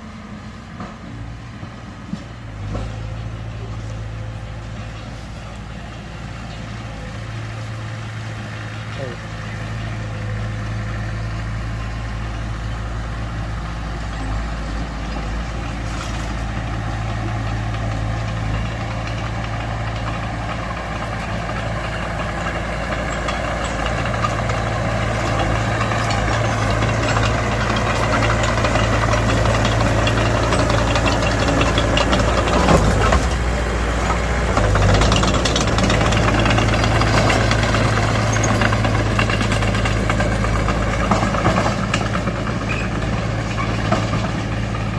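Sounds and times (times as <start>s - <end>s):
bulldozer diesel engine running: 0.0s - 44.9s
rattle: 18.6s - 44.6s.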